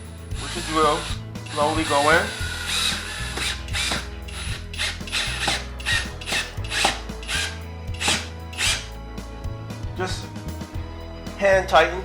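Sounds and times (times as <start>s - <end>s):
drill driving a screw: 0.4s - 8.9s.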